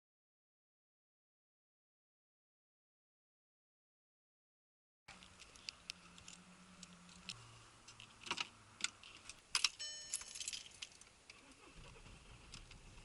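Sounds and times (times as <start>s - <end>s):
short ringing jingle: 9.8s - 10.6s.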